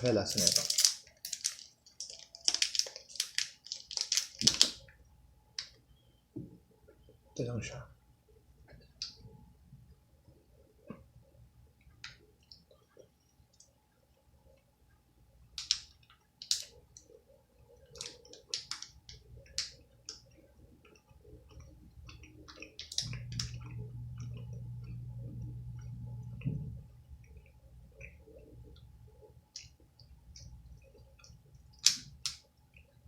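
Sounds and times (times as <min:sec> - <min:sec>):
low steady hum: 0:00.0 - 0:33.0
mouth chewing wet clicks: 0:17.9 - 0:26.4.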